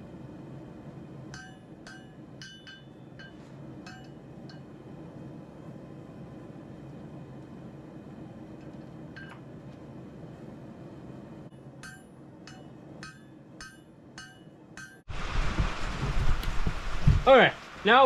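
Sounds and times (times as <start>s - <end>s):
hammer striking steel on anvil: 1.3s - 4.7s, 11.5s - 15.1s.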